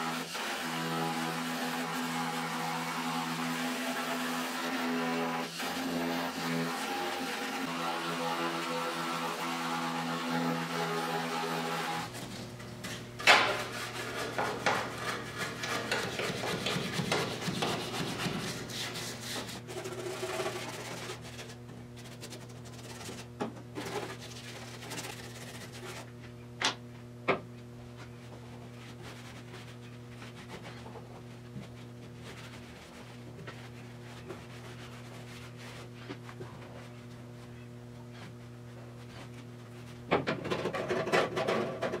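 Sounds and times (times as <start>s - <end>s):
steady low hum: 12.1s - 41.0s
brush scrubbing steel: 13.5s - 26.2s, 28.8s - 36.2s.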